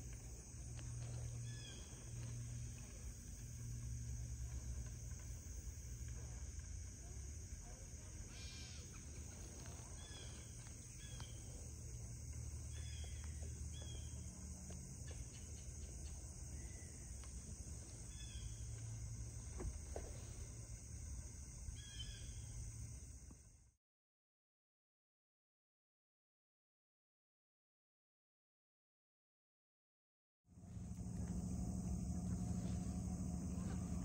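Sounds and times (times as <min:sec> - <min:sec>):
low rumble: 0:00.0 - 0:21.8, 0:30.5 - 0:34.0
insects droning: 0:00.0 - 0:23.8, 0:30.5 - 0:34.0.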